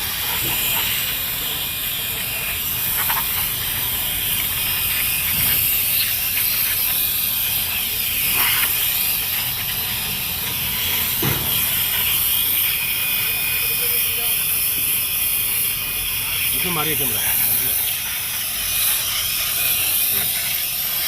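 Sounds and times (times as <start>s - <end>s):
pressure spray hissing: 0.0s - 21.0s.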